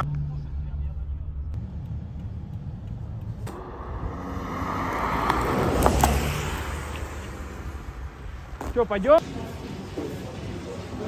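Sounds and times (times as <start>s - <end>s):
car engine rumbling: 0.0s - 9.8s
rushing noise: 1.6s - 9.0s.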